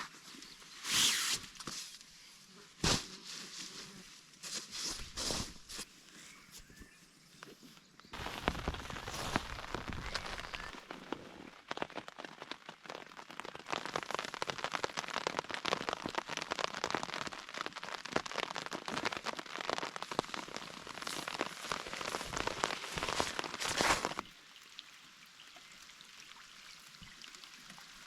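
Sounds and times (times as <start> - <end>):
rain pattering: 8.2 - 28.0.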